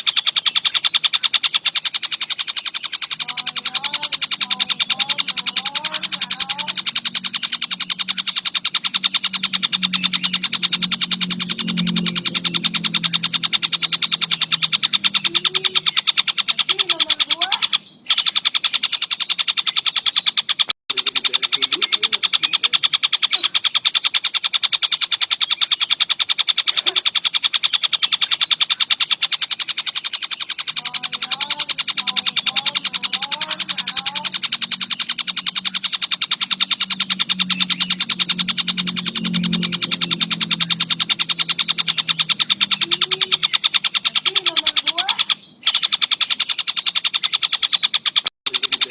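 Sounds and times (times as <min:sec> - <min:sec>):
faint low wavering bird calls: 0:00.0 - 0:48.9
kingfisher chattering: 0:00.0 - 0:48.9.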